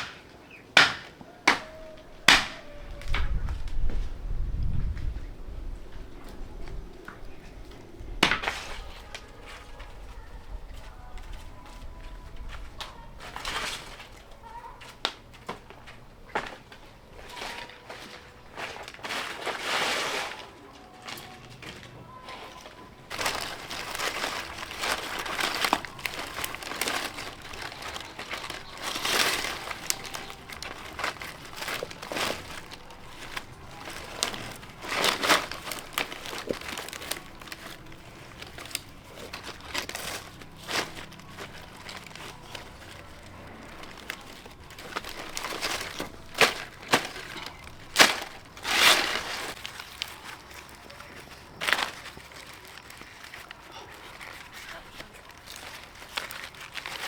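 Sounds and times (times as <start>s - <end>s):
crinkling and rustling: 0.0s - 57.0s
sharp snaps and cracks: 23.1s - 57.0s.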